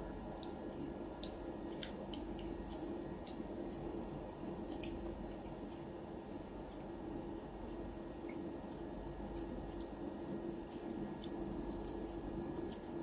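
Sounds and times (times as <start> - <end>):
steady low hum: 0.0 - 13.0
person chewing food: 10.7 - 12.8.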